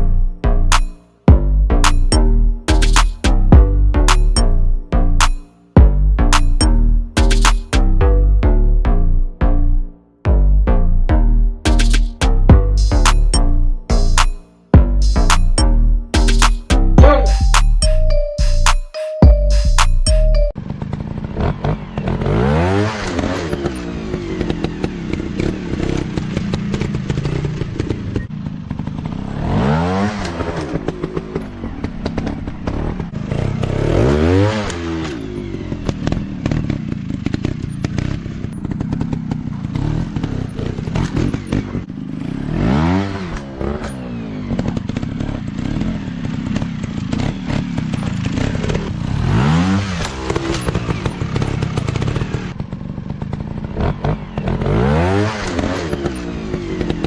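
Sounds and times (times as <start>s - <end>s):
dirt bike engine revving: 20.6s - 57.0s.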